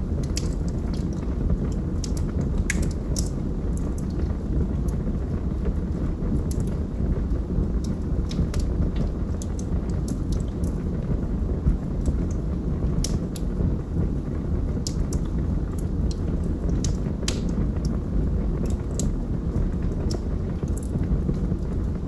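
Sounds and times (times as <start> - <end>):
fire flames rumbling: 0.0 - 22.0
wood crackling and popping: 0.0 - 22.0
logs crackling: 16.8 - 17.6.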